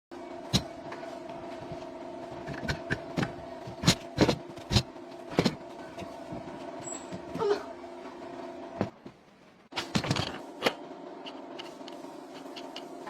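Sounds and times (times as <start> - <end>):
steady low hum: 0.1 - 13.0.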